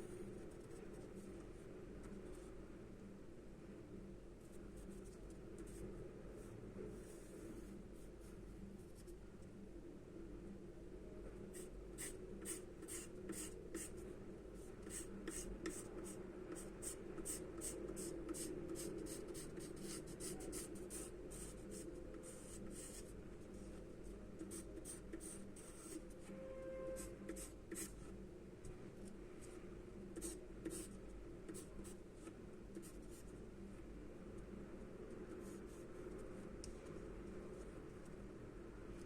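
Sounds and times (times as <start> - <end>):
steady low hum: 0.0 - 39.0
pencil scratching on paper: 11.6 - 13.9, 14.8 - 23.1, 24.4 - 26.0, 26.9 - 28.1, 30.2 - 31.7.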